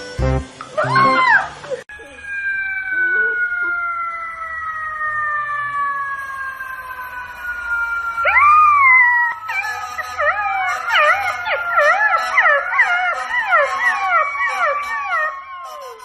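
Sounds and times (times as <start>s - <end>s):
long wailing tone: 0.2s - 16.0s
puppy howling: 8.2s - 16.0s.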